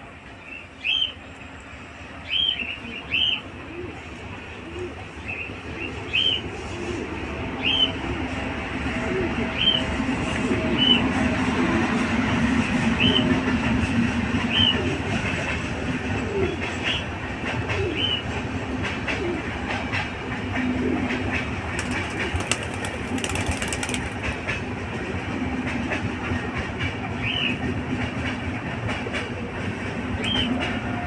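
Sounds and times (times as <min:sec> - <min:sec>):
birds chirping: 0:02.2 - 0:03.5.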